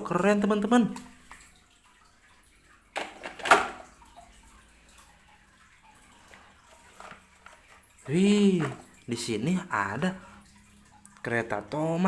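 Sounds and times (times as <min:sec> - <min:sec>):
plastic toys rustling: 0:03.0 - 0:03.8, 0:06.2 - 0:08.9.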